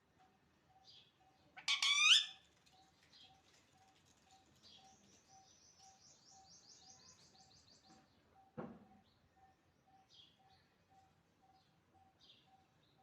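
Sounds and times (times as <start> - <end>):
parrot chirping: 1.6 - 2.4.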